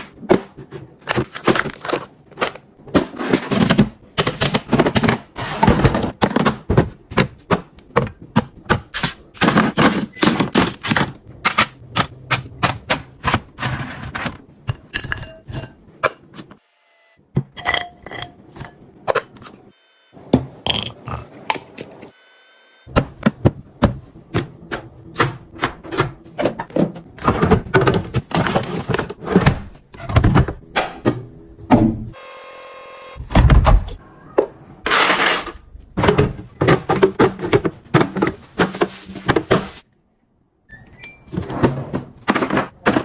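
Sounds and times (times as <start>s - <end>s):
food containers knocking and clacking: 0.0s - 16.4s, 22.9s - 31.2s, 36.0s - 39.8s, 41.3s - 43.0s.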